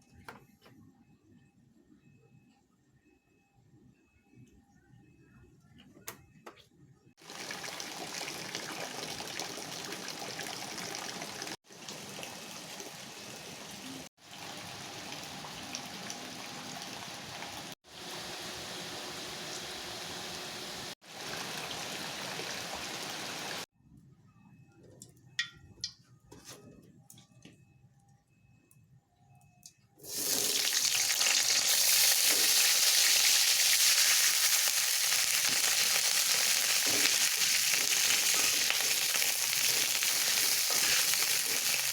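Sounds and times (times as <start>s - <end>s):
food sizzling in hot oil: 7.2s - 23.6s, 30.0s - 41.9s.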